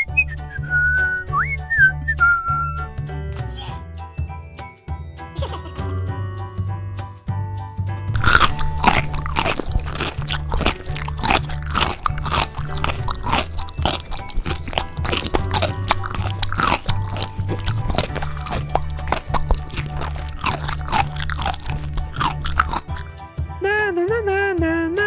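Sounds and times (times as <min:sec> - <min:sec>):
background music with bass line: 0:00.0 - 0:25.0
crunchy biting and chewing: 0:08.2 - 0:23.1.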